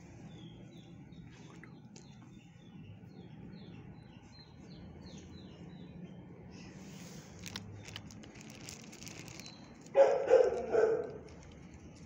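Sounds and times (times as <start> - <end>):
small bird chirping: 7.4 - 12.0.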